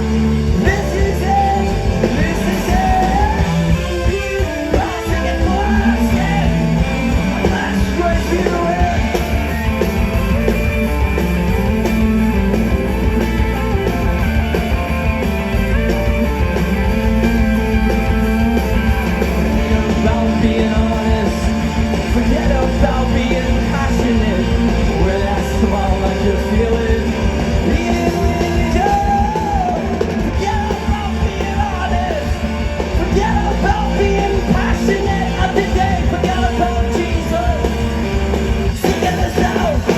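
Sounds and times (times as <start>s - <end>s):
live rock band playing: 0.0s - 39.9s
person singing or yelling: 0.6s - 9.2s, 19.6s - 32.4s, 38.8s - 39.9s.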